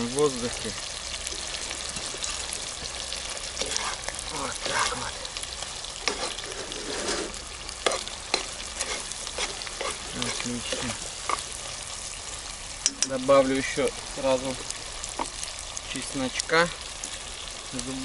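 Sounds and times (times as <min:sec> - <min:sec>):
meat and onions sizzling: 0:00.0 - 0:18.0.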